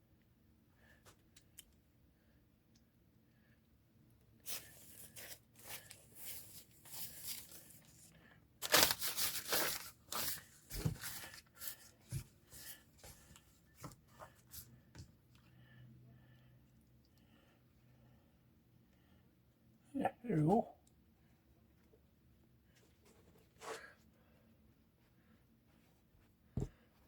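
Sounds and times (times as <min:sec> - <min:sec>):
newspaper tearing: 0:08.6 - 0:11.7.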